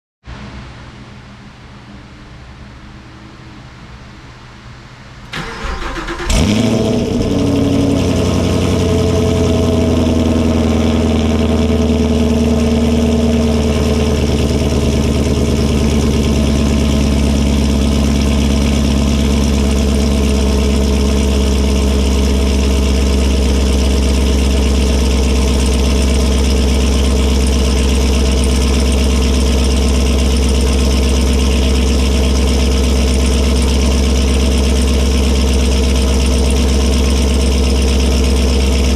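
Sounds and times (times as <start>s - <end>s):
starter motor cranking: 5.3s - 6.8s
car engine idling loudly: 5.4s - 38.9s.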